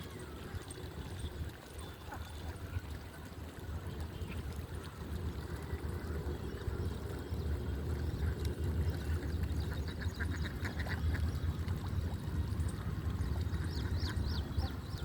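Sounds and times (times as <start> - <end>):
steady low rumble: 4.3 - 15.0.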